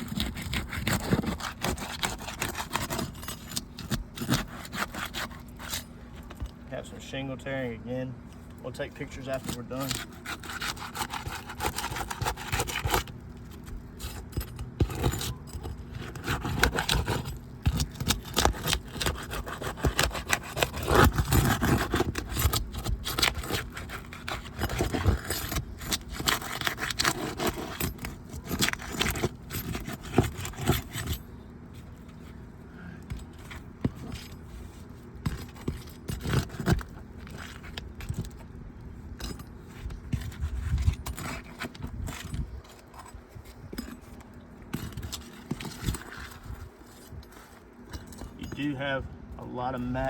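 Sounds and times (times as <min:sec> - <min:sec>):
roof shingles scraping and tearing: 0:00.0 - 0:05.8, 0:09.0 - 0:32.4, 0:33.1 - 0:38.4.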